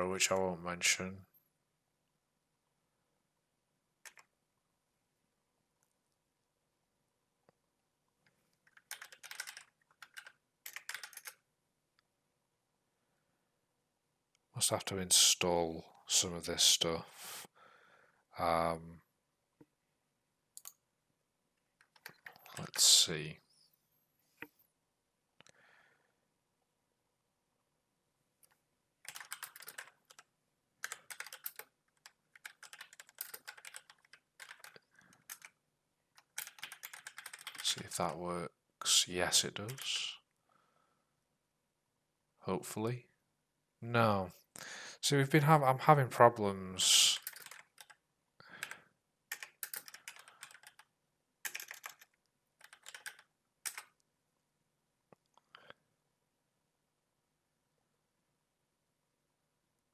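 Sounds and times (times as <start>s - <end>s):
computer keyboard typing: 4.0s - 4.3s, 8.6s - 11.4s, 21.8s - 22.8s, 29.0s - 35.6s, 36.2s - 37.9s, 39.7s - 40.0s, 47.0s - 54.0s.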